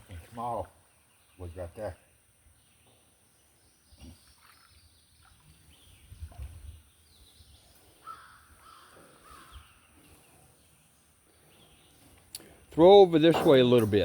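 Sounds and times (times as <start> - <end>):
bird calling: 7.7 - 12.6.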